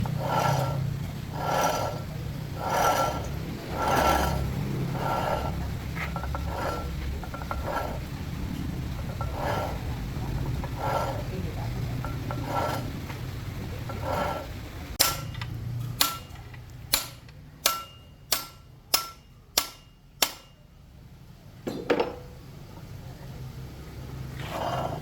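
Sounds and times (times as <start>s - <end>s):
hammer striking metal: 15.0s - 20.8s.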